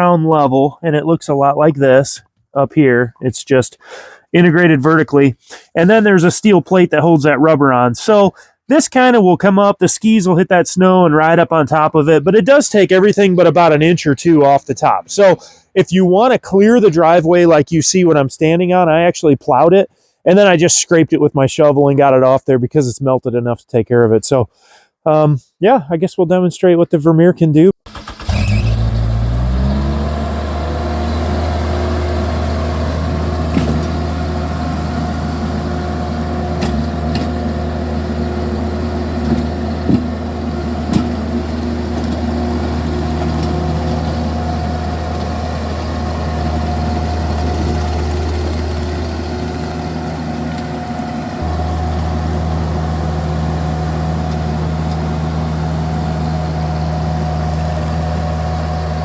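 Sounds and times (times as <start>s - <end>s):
small engine revving and running: 28.0s - 53.5s.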